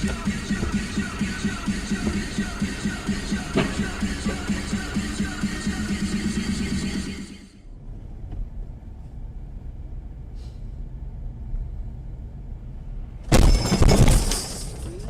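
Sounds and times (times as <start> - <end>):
car engine rumble and road noise: 0.0 - 15.0
loud collision crash: 0.1 - 5.0, 13.3 - 14.8.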